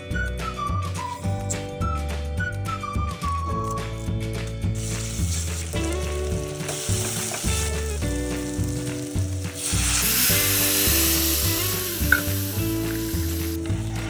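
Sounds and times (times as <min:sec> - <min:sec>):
background music with bass line: 0:00.0 - 0:14.0
food sizzling in hot oil: 0:04.6 - 0:14.0.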